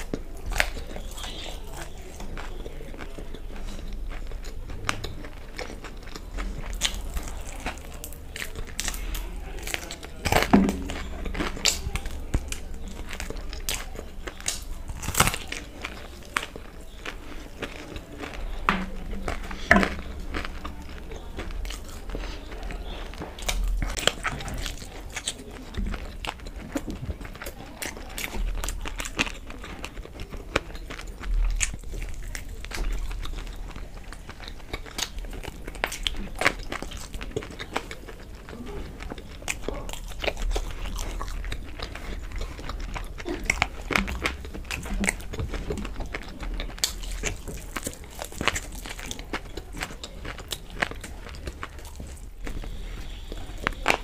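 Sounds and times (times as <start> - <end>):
chewing crunchy fried food: 0.0 - 54.0.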